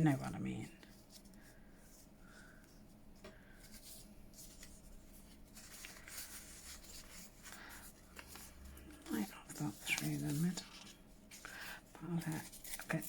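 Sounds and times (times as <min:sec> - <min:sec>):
paper rustling and sliding: 0:03.4 - 0:13.0.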